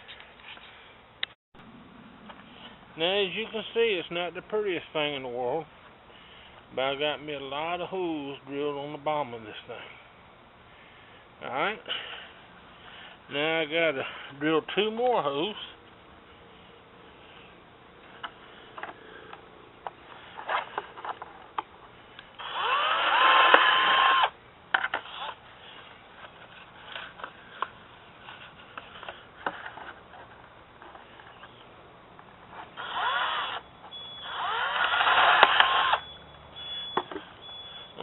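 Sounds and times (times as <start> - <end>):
power drill whining: 22.4 - 25.4, 32.7 - 37.9.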